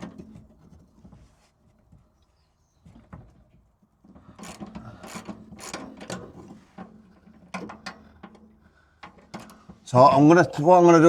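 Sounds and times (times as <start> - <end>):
ratchet spanner clicking and scraping: 4.4 - 6.4.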